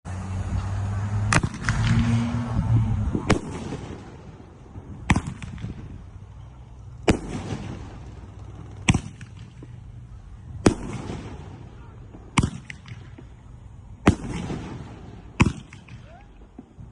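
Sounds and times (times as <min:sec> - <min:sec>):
firework cake reports: 0:09.9 - 0:13.3.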